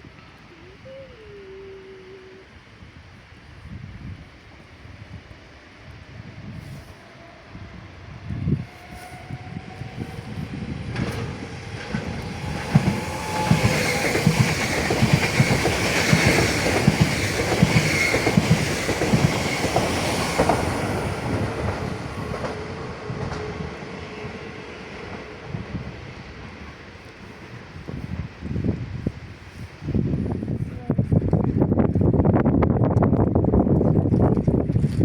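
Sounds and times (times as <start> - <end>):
train wheels clacking on rails: 9.4 - 26.9.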